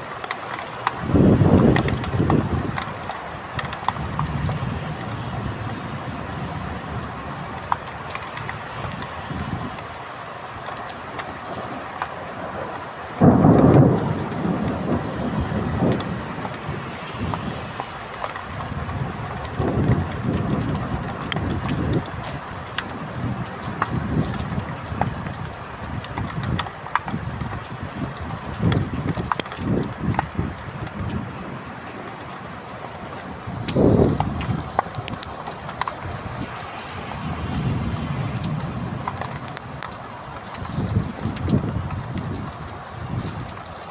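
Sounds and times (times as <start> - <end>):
rain falling: 0.0 - 43.9
low thunder rumbles: 0.9 - 3.0, 11.4 - 43.9.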